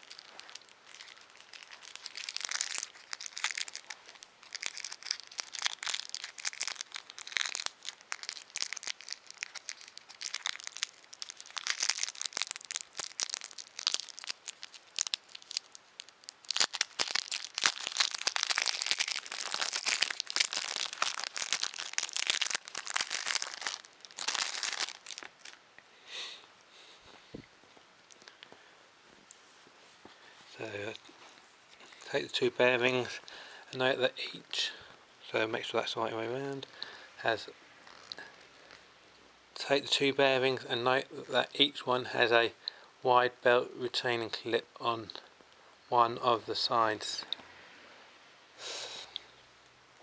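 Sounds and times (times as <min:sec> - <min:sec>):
plastic packaging crinkling: 0:00.0 - 0:25.6, 0:37.8 - 0:38.8
plastic tearing: 0:00.0 - 0:25.6, 0:37.8 - 0:38.8.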